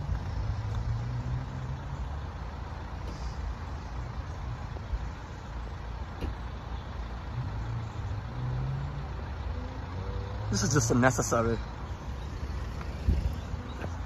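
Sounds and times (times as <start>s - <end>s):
vehicle engines idling: 0.0s - 14.0s.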